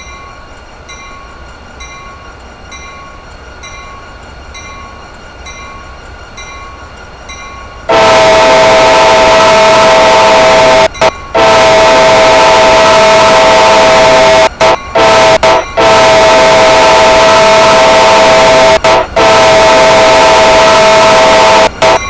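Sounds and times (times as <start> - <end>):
locomotive air horn blasts: 7.9 - 22.0.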